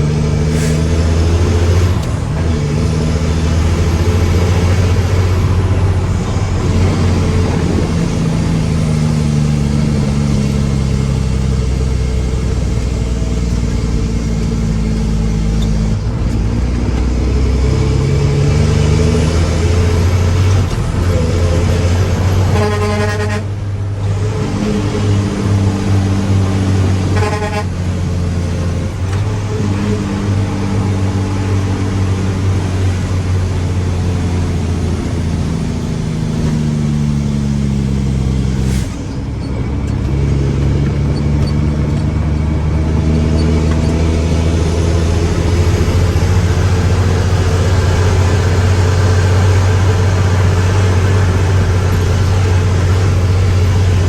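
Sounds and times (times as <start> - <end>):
diesel truck engine revving: 0.0 - 54.0
truck horn: 19.2 - 28.3.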